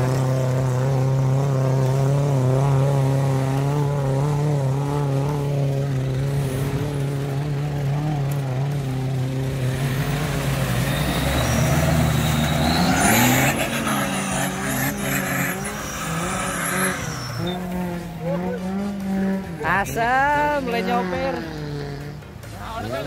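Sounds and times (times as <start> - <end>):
engine droning at low revs: 0.0 - 23.0.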